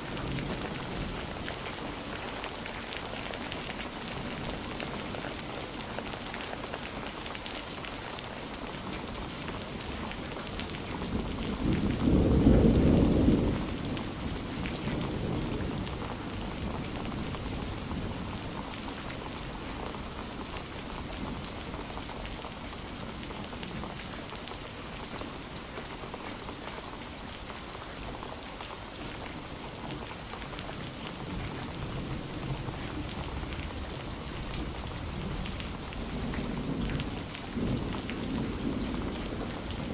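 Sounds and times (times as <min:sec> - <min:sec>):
steady rain falling: 0:00.0 - 0:39.9
thunder rumble: 0:10.9 - 0:18.4.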